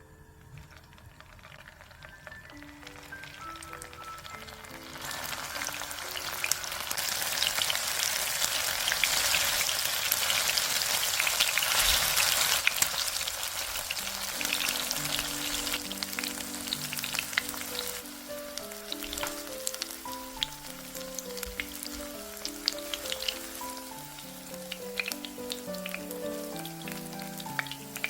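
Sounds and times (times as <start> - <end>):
food sizzling in hot oil: 0.6 - 28.0.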